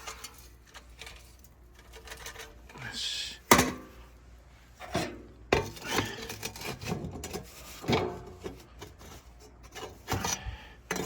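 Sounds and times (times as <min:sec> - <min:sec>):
camp gear rubbing and scraping: 0:04.7 - 0:10.4.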